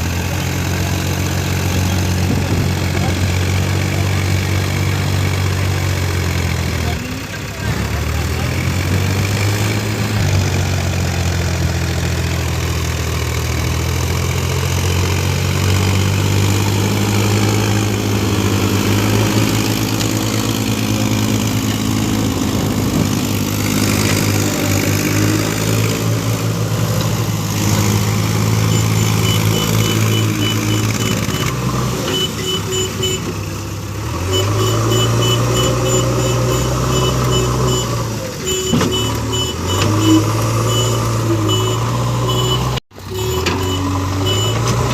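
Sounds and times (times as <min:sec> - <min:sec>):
heavy diesel machinery engine: 0:00.0 - 0:44.9
reversing alarm beeps: 0:28.7 - 0:31.5, 0:34.3 - 0:44.7.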